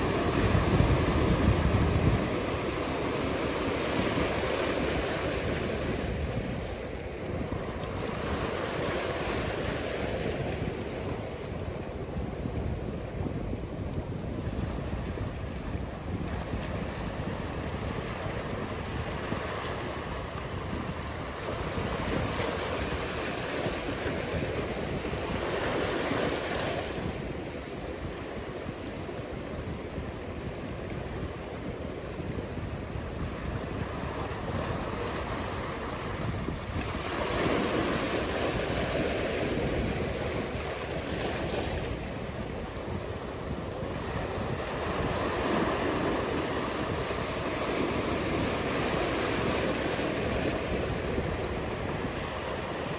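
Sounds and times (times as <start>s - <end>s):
breaking waves: 0.0s - 11.3s, 32.5s - 52.9s
wind rumbling on microphone: 0.0s - 52.9s.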